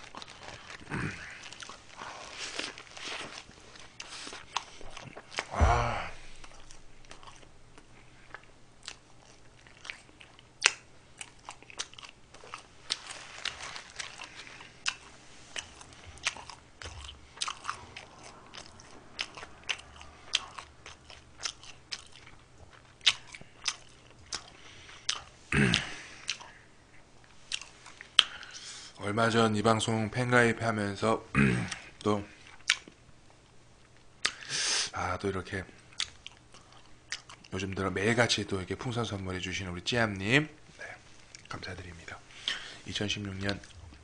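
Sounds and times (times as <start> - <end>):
person chewing food: 0.0 - 29.0, 31.7 - 34.5, 35.8 - 37.6, 41.0 - 41.6.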